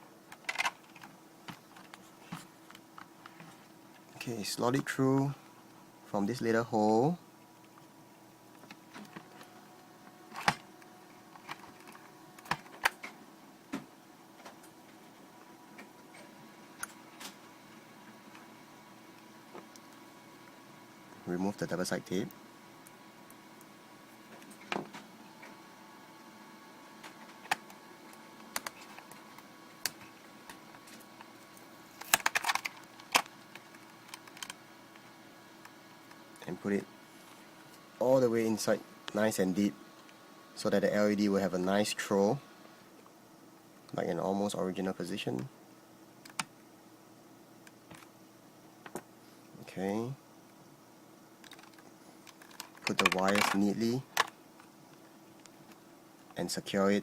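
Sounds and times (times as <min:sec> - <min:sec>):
plastic parts clicking and tapping: 0:32.0 - 0:34.6, 0:51.4 - 0:54.7.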